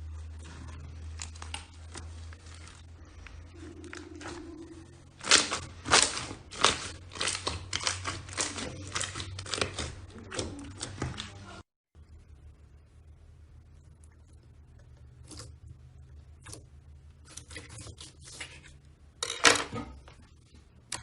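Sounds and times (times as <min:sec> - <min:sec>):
slime popping and crackling: 0:05.2 - 0:11.0.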